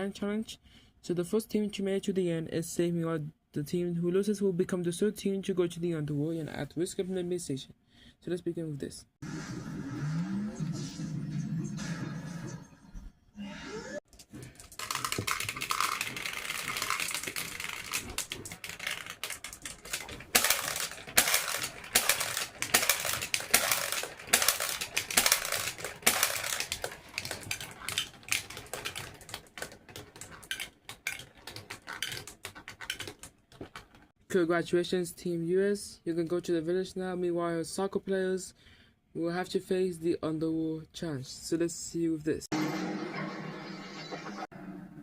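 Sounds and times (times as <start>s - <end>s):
small hard objects clattering: 14.4s - 34.1s.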